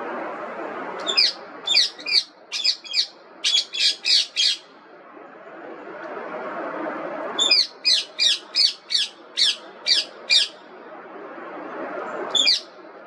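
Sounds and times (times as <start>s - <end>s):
low background hiss: 0.0s - 13.0s
parakeet squawking: 1.0s - 4.6s, 7.4s - 10.6s, 12.3s - 12.7s.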